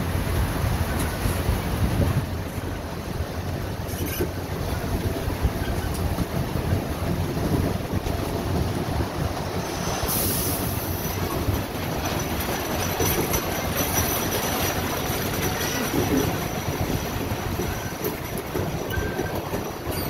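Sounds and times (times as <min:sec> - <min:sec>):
train wheels rumbling on rail: 0:00.0 - 0:20.0
train high-pitched burst: 0:09.6 - 0:11.6.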